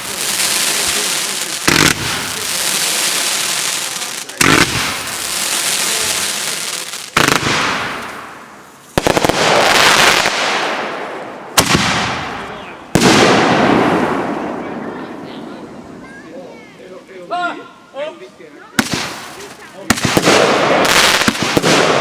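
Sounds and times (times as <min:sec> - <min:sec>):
cluster of firework pops: 0:00.0 - 0:10.9, 0:11.6 - 0:13.9, 0:18.8 - 0:22.0
fireworks bangs with hiss: 0:00.0 - 0:16.0, 0:18.8 - 0:22.0.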